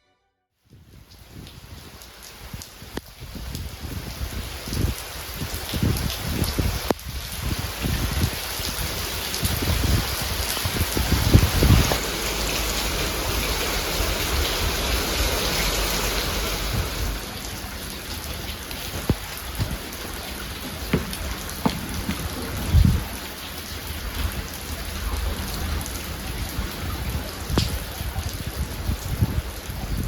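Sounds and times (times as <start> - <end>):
steady rain falling: 0.7 - 30.0
water drips: 8.0 - 28.6
short knocks: 20.7 - 22.9.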